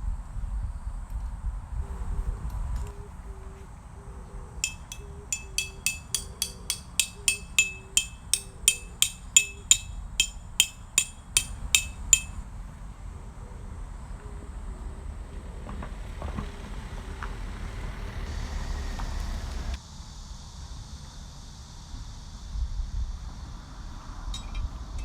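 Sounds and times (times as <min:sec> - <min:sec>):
hammer striking metal tent peg: 0:04.6 - 0:12.4.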